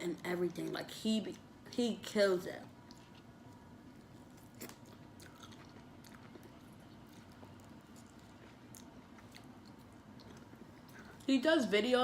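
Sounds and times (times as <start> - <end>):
chewing fried food crunching: 2.7 - 11.3.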